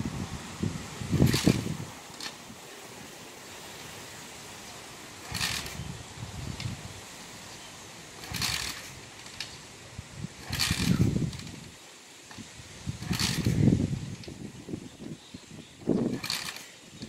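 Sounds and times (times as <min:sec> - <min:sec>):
steady road noise: 0:00.0 - 0:17.0
dirt bike kick-start: 0:01.1 - 0:02.4, 0:05.2 - 0:06.8, 0:08.2 - 0:09.7, 0:10.3 - 0:14.4, 0:15.9 - 0:17.0.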